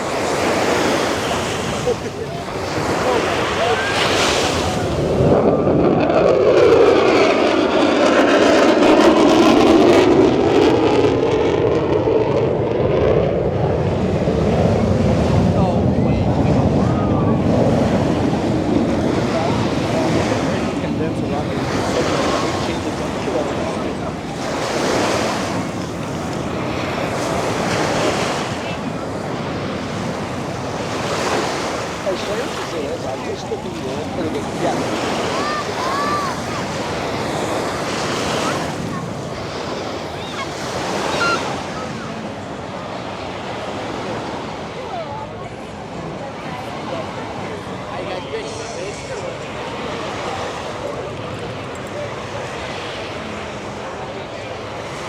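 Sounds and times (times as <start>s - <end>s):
aircraft engine drone: 0.0s - 43.8s
ocean surf washing onto beach: 0.0s - 55.0s
wind on microphone: 0.0s - 55.0s.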